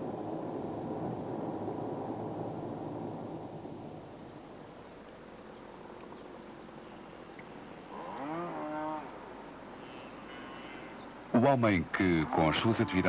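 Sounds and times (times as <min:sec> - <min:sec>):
faint steady hiss: 0:00.0 - 0:13.0
cow mooing: 0:07.9 - 0:09.2.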